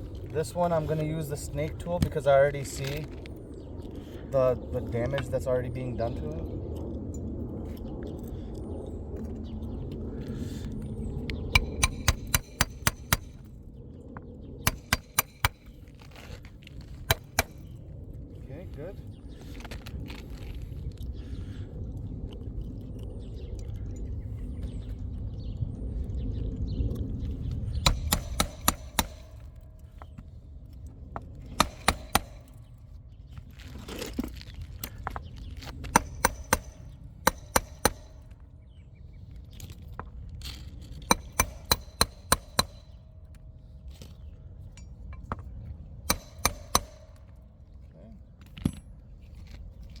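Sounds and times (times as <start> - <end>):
low rumble: 0.0 - 50.0
hammer driving nails into shingles: 11.6 - 13.5, 14.7 - 15.8, 16.9 - 17.8, 27.8 - 30.1, 31.5 - 32.8, 35.8 - 38.4, 41.0 - 43.0, 46.1 - 47.4.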